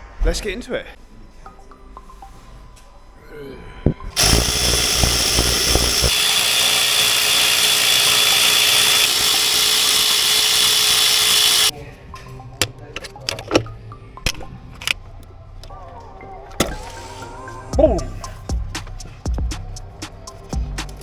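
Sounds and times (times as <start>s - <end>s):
power tool running: 4.1s - 11.7s.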